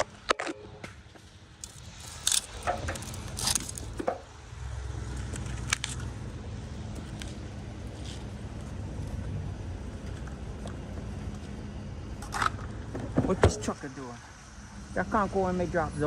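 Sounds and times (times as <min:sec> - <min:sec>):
low vehicle engine rumble: 0:00.0 - 0:16.0
metallic clicks and scrapes: 0:01.6 - 0:04.2, 0:05.1 - 0:06.1.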